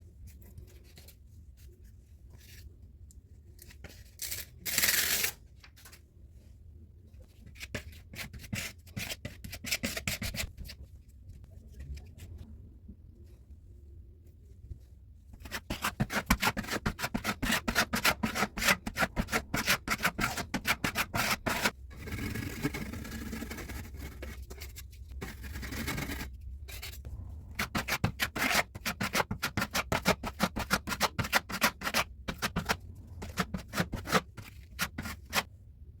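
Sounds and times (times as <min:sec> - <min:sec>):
hand tool scraping drywall: 0:15.4 - 0:27.0, 0:27.6 - 0:35.5.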